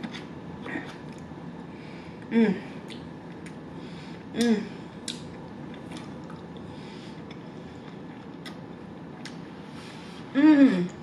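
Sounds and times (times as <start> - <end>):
mouth clicks and smacks: 4.4 - 6.5
person chewing food: 5.0 - 9.5.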